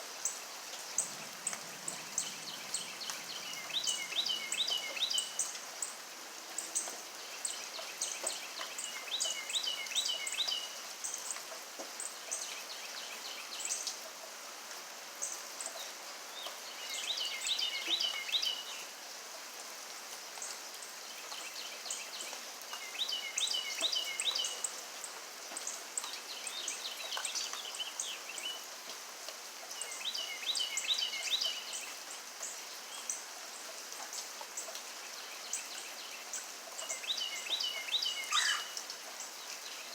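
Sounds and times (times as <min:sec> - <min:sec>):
steady rain falling: 0:00.0 - 0:39.9
bird calling descending notes: 0:38.3 - 0:38.7.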